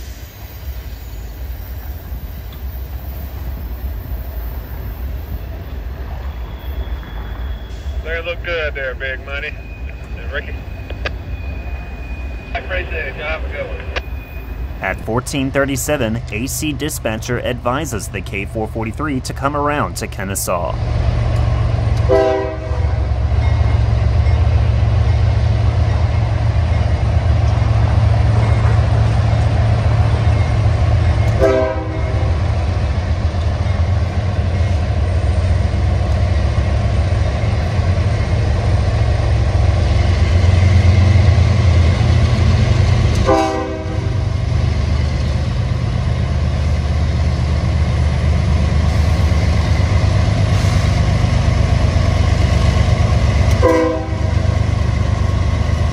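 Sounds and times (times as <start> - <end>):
diesel locomotive engine rumble: 0.0 - 55.9
train horn: 22.0 - 23.1, 31.3 - 32.4, 43.1 - 44.3, 53.5 - 54.4.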